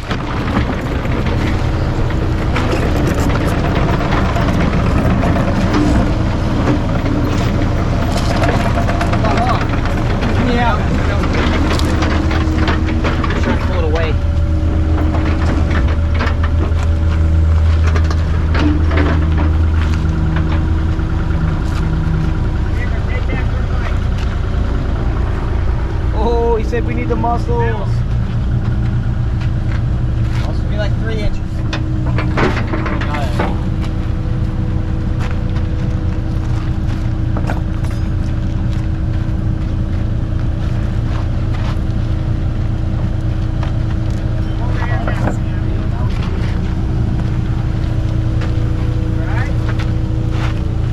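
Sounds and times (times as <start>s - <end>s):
sharp knocks and clatters: 0.0s - 25.9s, 27.2s - 34.2s
excavator engine idling: 0.0s - 50.9s.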